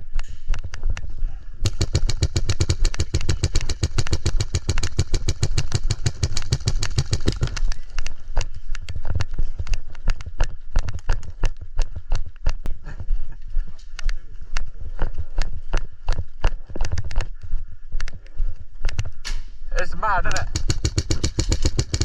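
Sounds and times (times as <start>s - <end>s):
airsoft guns firing: 1.6s - 8.0s, 20.2s - 22.0s.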